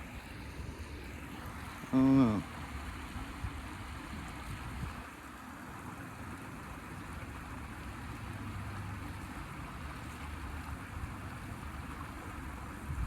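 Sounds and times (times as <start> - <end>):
creek water running: 0.0 - 13.0
wind rumble on microphone: 4.5 - 5.1.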